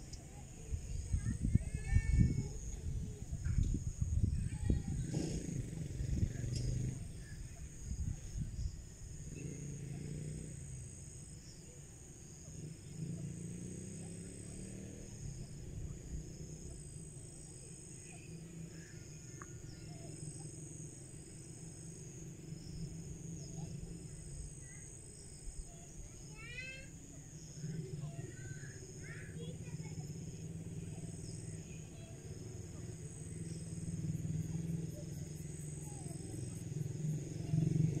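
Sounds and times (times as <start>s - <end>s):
insects chirring: 0.0s - 38.0s.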